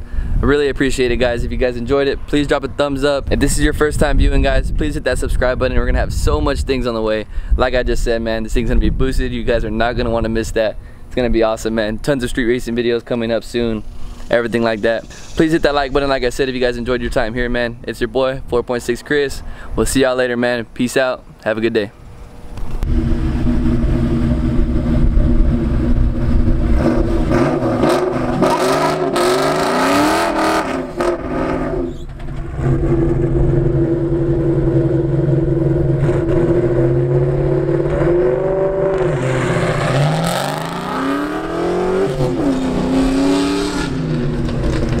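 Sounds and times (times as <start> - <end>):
car engine accelerating hard: 22.8 - 45.0.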